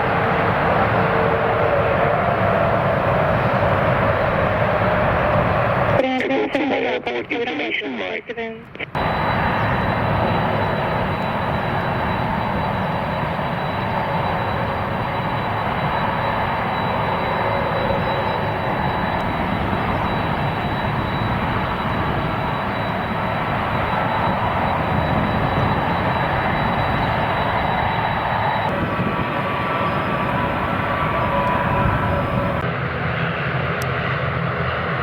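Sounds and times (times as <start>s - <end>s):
airplane engines running: 0.0s - 35.0s
thin high whine: 9.0s - 32.6s.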